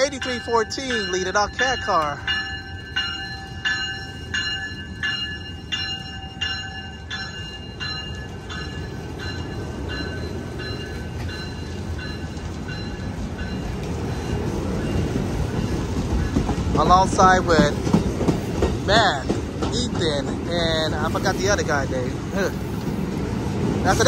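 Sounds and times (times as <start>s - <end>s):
train warning bell ringing: 0.0s - 17.8s
rumble of rolling train: 0.0s - 24.0s.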